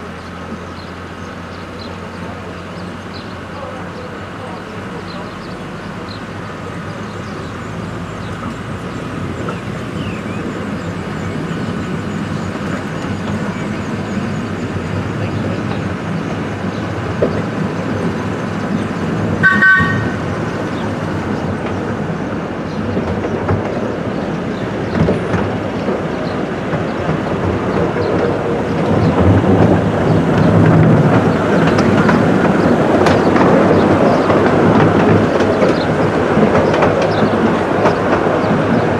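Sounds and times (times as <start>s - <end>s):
miniature railway train running: 0.0s - 38.9s
wheels clattering: 0.0s - 38.9s
train whistle toot: 19.4s - 20.4s.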